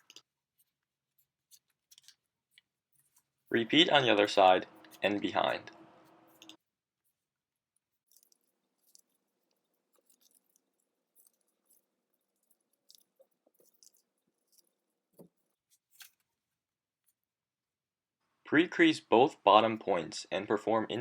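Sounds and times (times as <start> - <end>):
paper being folded and creased: 0.0 - 5.3, 6.0 - 17.3.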